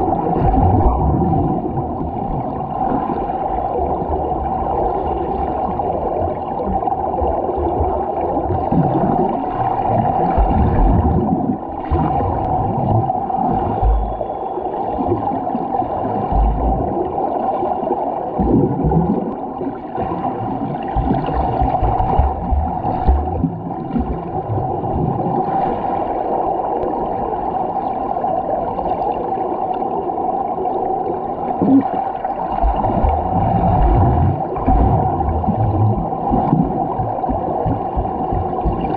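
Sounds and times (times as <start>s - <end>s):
muffled underwater water churning: 0.0s - 38.9s
low thumps: 16.3s - 16.9s, 21.0s - 24.2s, 32.6s - 38.9s.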